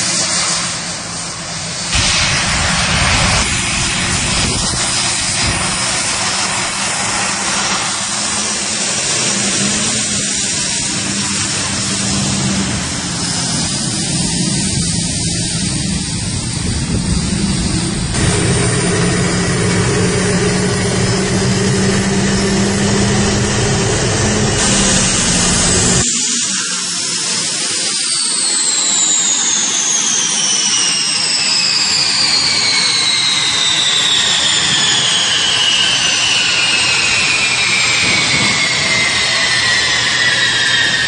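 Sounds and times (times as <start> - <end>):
turbine high whine: 0.0 - 41.0
gas turbine low hum: 0.6 - 26.2.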